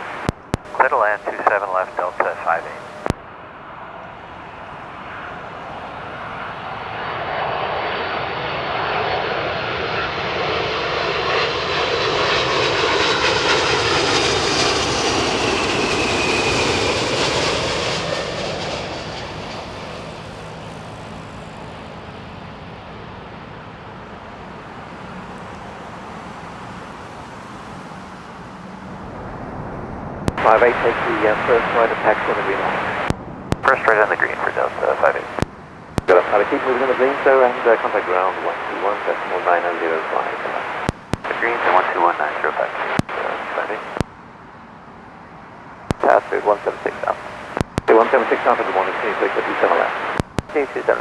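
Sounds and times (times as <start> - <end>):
low steady jet rumble: 0.0 - 3.2, 30.3 - 44.1, 45.9 - 51.0
jet airliner engine whine: 0.0 - 35.4.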